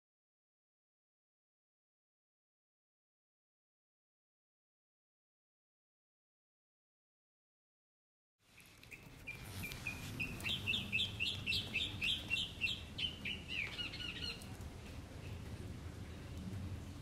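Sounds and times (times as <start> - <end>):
songbird chirping song: 8.4 - 17.0.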